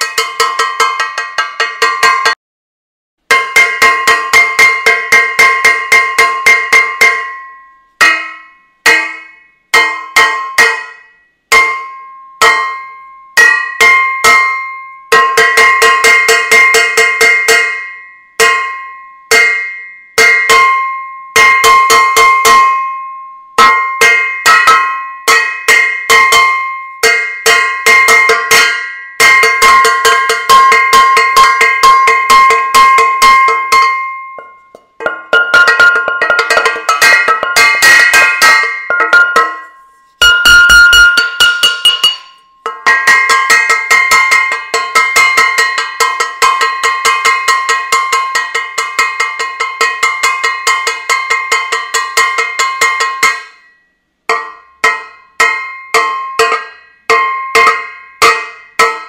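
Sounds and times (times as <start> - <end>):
metal saucepan clanging: 27.0 - 53.5.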